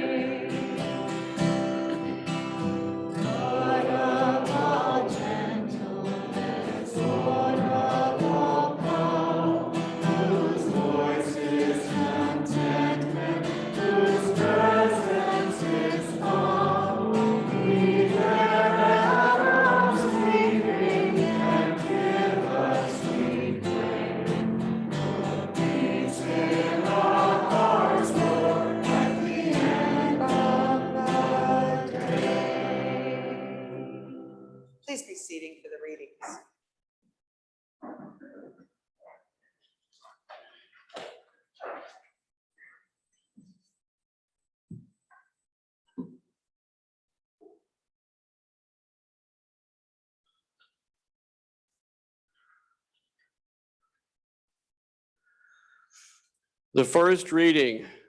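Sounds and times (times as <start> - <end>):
group singing a hymn: 0.0 - 1.5, 3.0 - 34.6.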